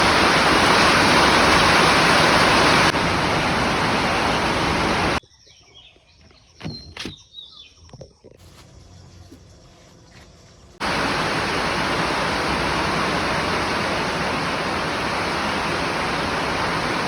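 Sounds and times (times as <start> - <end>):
heavy rain: 0.0 - 5.2, 10.8 - 17.0.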